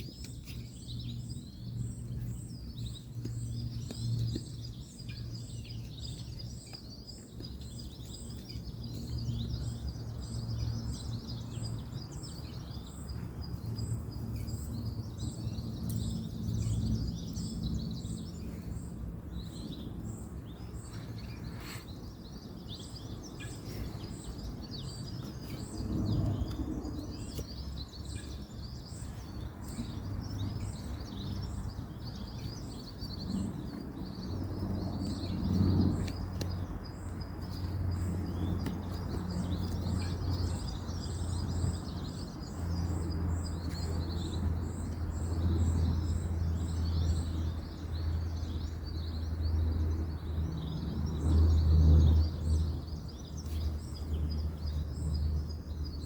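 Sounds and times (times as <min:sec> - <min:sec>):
distant road traffic rumble: 0:00.0 - 0:56.0
small birds chirping: 0:00.0 - 0:56.0.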